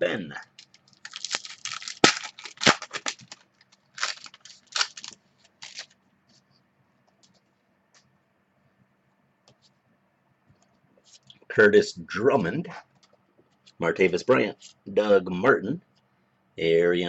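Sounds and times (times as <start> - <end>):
card pack wrapper tearing: 0.6 - 6.0
cards rustling: 0.6 - 6.0.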